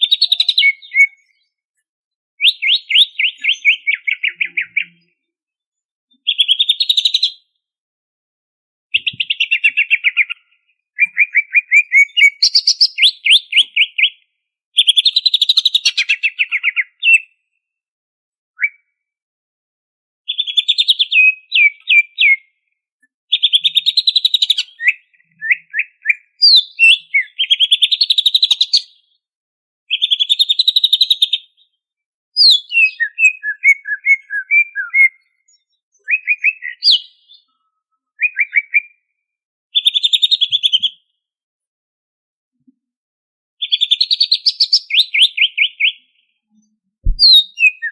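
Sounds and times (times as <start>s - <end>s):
bird singing fast chattering phrases: 0.0s - 1.1s, 11.0s - 14.1s, 23.3s - 28.9s, 47.1s - 47.9s.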